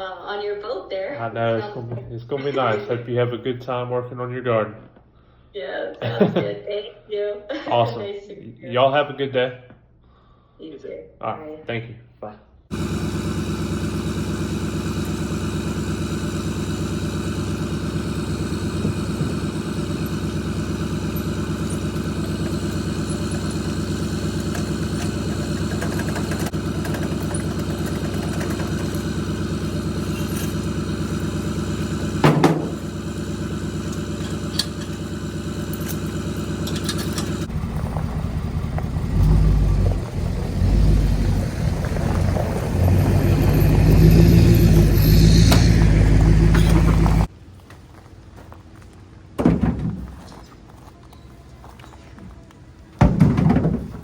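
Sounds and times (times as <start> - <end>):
vehicle engine running: 12.7 - 49.3
vehicle rumbling on the move: 12.7 - 54.0
short loud knock: 32.2 - 32.8.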